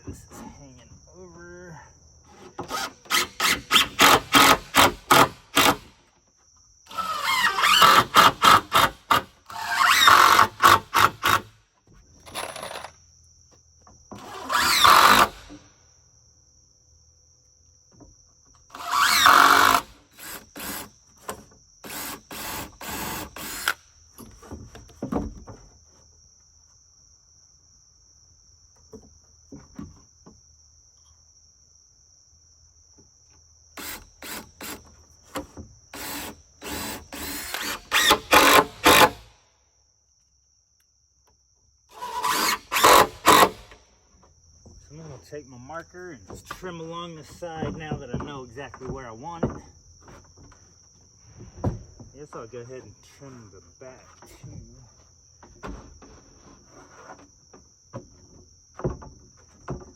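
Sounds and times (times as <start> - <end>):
crickets chirring: 0.0 - 59.9
saw cutting wooden board: 2.3 - 5.9, 6.9 - 11.5, 14.1 - 15.6, 18.7 - 23.8, 33.8 - 34.9, 35.9 - 39.3, 41.9 - 43.8.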